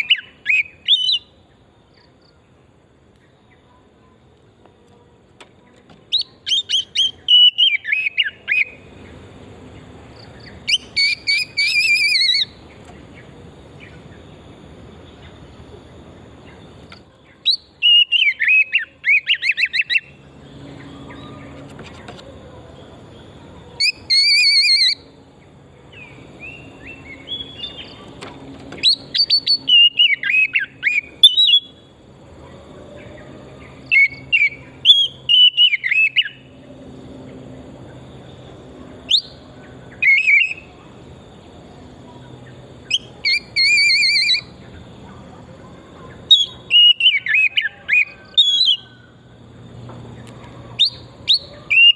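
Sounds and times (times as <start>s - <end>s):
songbird whistling phrases: 0.0s - 1.4s, 6.1s - 8.8s, 10.6s - 12.6s, 17.2s - 21.6s, 23.8s - 25.1s, 28.8s - 31.8s, 33.8s - 36.5s, 39.1s - 40.7s, 42.8s - 44.8s, 46.2s - 49.1s, 50.8s - 51.9s.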